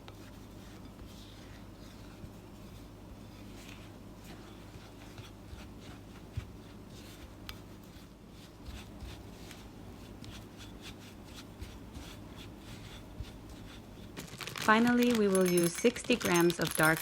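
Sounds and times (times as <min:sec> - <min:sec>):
utensils scraping and rustling: 0:10.2 - 0:17.0.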